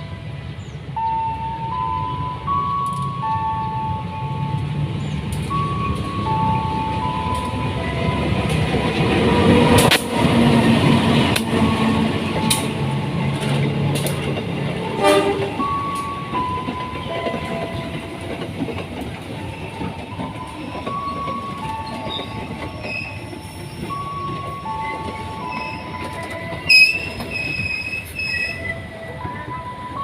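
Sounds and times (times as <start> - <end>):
train passing and rumbling: 0.0 - 30.0
two-tone beeping: 5.4 - 8.4
train horn blast: 14.8 - 15.7.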